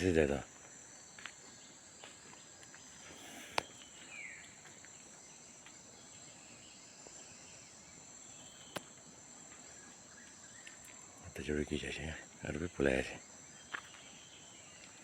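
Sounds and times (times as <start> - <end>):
insect chorus: 0.0 - 15.0
falling bird chirp: 2.2 - 4.8.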